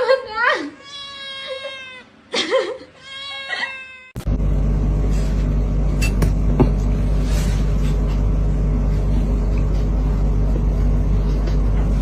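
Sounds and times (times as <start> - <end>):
cat meowing: 0.8 - 2.1, 3.0 - 4.2.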